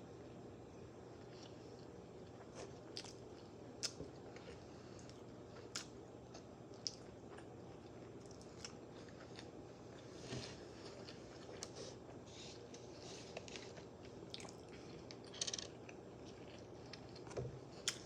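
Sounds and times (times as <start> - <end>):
close chewing with mouth smacks: 13.3 - 18.0.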